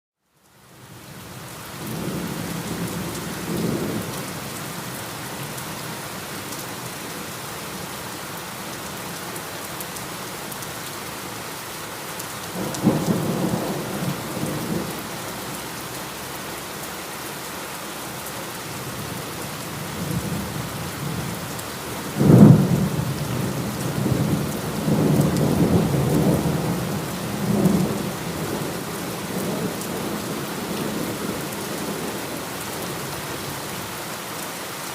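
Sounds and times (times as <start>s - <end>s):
heavy rain falling: 0.3s - 34.9s
loud thunderclap: 22.2s - 26.8s.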